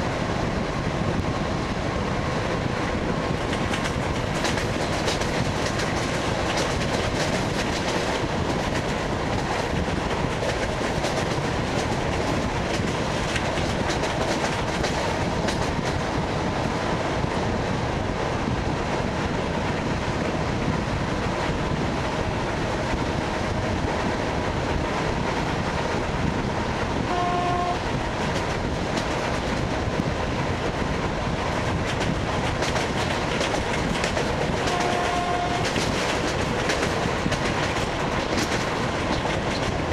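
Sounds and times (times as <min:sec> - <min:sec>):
train wheels clickety-clack: 0:00.0 - 0:39.9
train horn: 0:27.1 - 0:27.9, 0:34.6 - 0:35.8.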